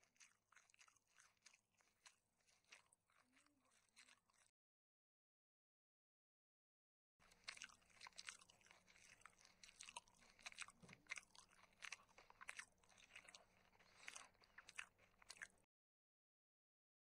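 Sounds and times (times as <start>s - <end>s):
person chewing crunchy food: 0.0s - 4.6s, 7.2s - 15.7s.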